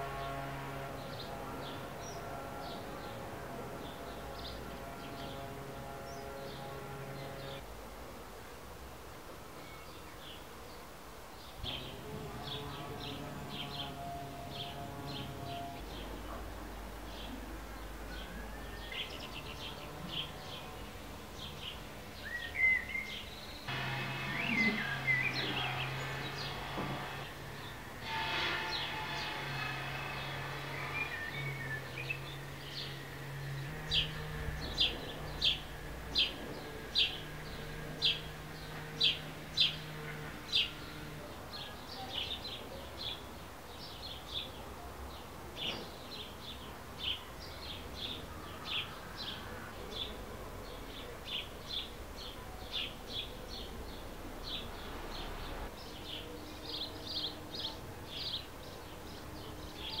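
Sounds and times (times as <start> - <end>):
bumblebee buzzing: 23.6 - 41.3.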